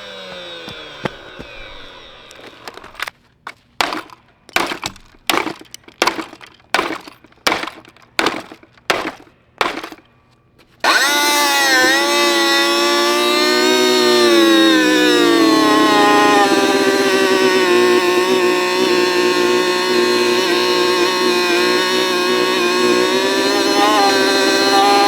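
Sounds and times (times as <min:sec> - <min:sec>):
smashing blows cracking plastic: 0:02.3 - 0:12.5
loud wavering wail: 0:22.2 - 0:25.0.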